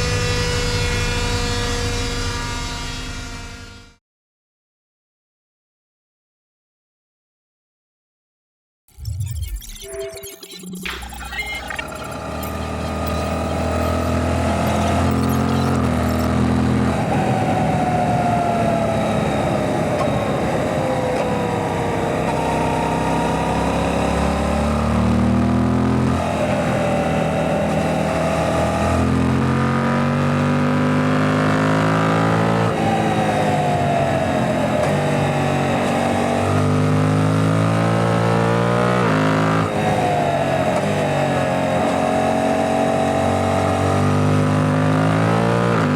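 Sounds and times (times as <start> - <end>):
motorcycle engine revving: 12.0 - 45.9.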